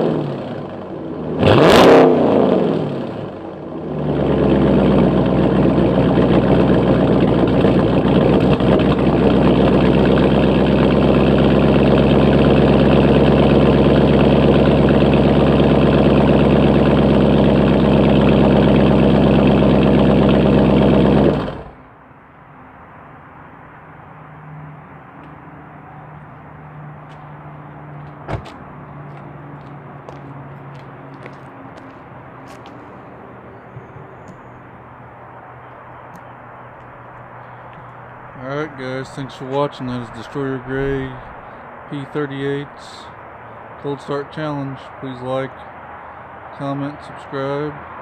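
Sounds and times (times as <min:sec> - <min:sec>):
car engine revving and idling: 0:00.0 - 0:21.9.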